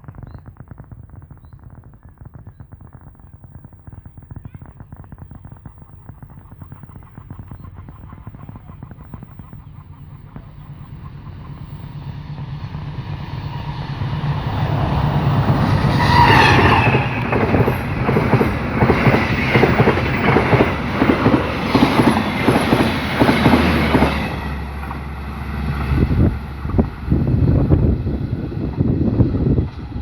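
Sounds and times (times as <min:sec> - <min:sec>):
train wheels clacking over rail joints: 0:14.4 - 0:25.1.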